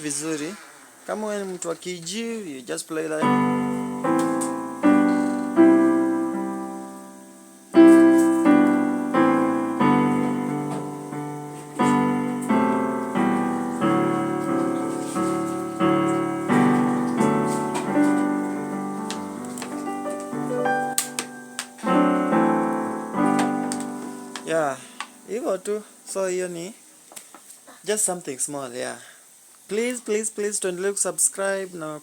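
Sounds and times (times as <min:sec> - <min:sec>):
piano keyboard chords: 0:03.2 - 0:26.2.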